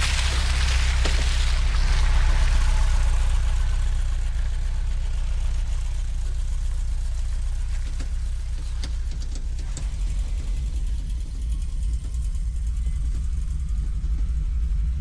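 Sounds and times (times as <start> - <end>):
hiss: 0.0 - 6.2
van engine rumble: 0.0 - 15.0.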